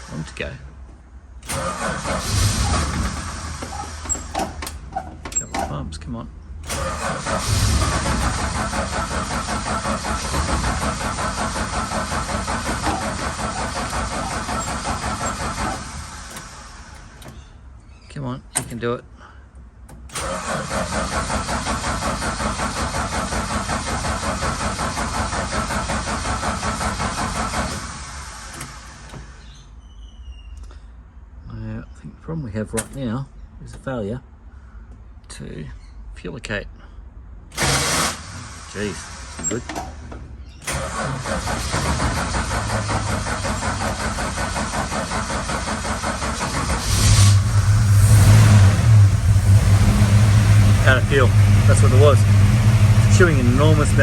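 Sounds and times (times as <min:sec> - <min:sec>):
starter motor cranking engine: 0:01.4 - 0:05.8, 0:06.6 - 0:17.6, 0:19.9 - 0:29.6, 0:37.5 - 0:54.0.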